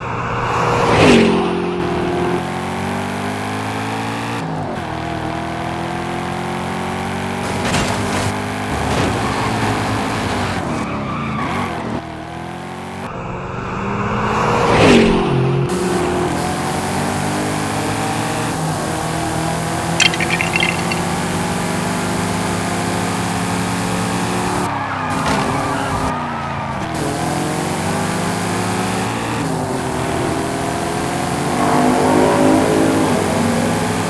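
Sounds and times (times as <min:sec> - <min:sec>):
car engines revving: 0:00.0 - 0:34.0
car passing by: 0:28.6 - 0:34.0.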